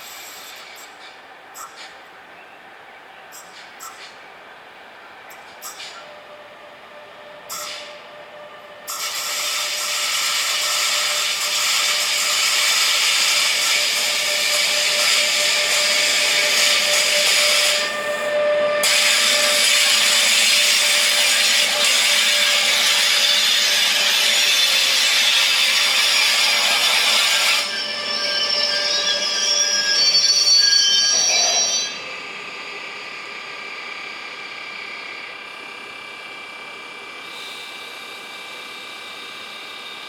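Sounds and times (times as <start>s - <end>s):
train wheels screeching on rails: 0.0s - 2.0s, 3.3s - 4.4s, 5.3s - 40.0s.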